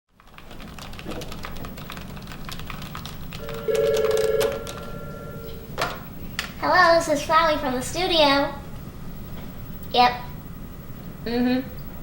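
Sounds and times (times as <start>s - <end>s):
typing on keyboard: 0.2s - 5.0s
steady electronic tone: 3.4s - 5.8s.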